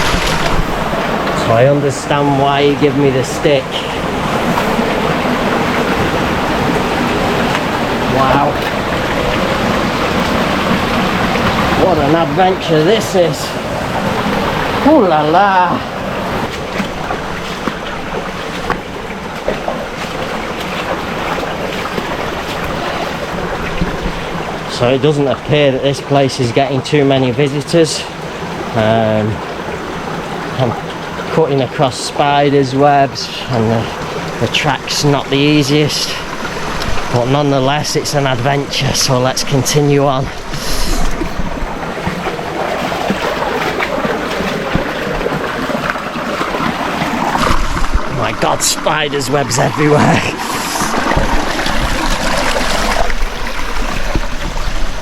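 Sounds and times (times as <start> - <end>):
feet wading splashing in stream: 0.0 - 24.7, 33.3 - 55.0
stream water rushing: 0.0 - 55.0
wind buffeting microphone: 36.2 - 55.0.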